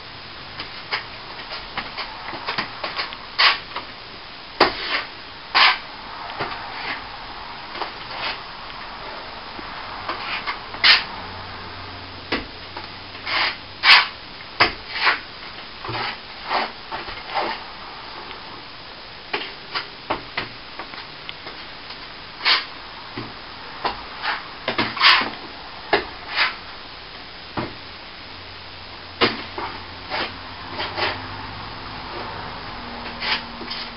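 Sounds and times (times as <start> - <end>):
plastering tools scraping and tapping: 15.8 - 17.6, 23.8 - 26.6, 29.2 - 31.2.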